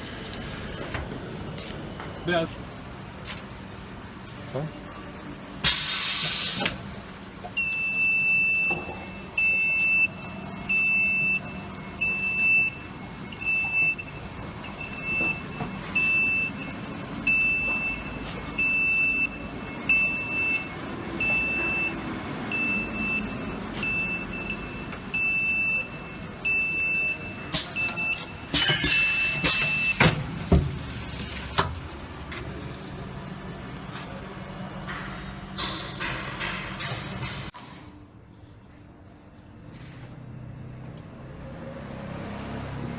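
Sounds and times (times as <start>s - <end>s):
short beeps: 7.6s - 30.0s
machine high whine: 8.7s - 27.6s.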